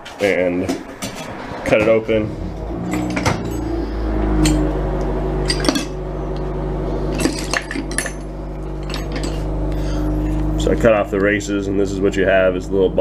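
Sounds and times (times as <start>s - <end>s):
steady low hum: 1.6s - 13.0s
small metal parts clinking: 2.8s - 4.8s, 5.4s - 6.5s, 7.1s - 9.5s.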